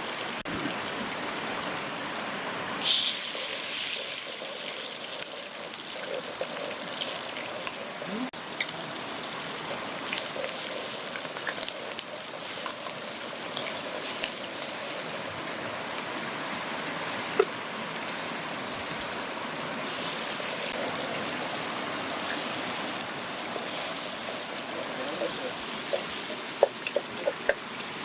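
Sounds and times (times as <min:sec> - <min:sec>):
stream and small waterfall rushing: 0:00.0 - 0:03.4, 0:11.0 - 0:28.0.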